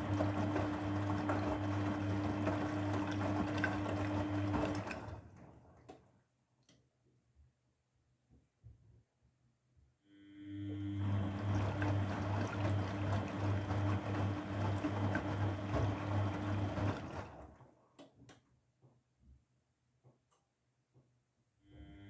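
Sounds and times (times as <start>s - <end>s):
washing machine water rushing: 0.0s - 5.9s, 10.8s - 17.8s.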